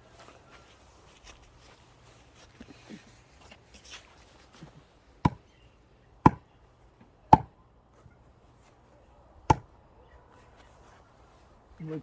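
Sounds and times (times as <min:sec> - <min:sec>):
axe chopping firewood: 0:05.2 - 0:05.4, 0:06.2 - 0:06.5, 0:07.3 - 0:07.6, 0:09.5 - 0:09.7.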